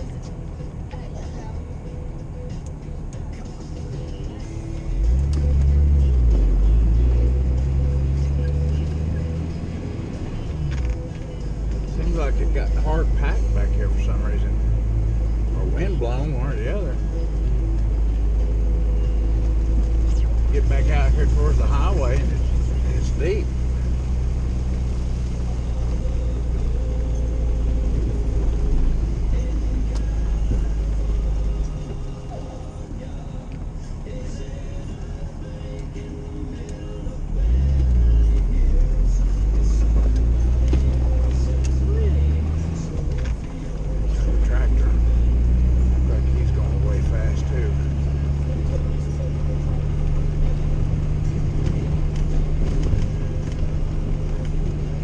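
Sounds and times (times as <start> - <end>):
car engine and road drone: 0.0 - 55.0.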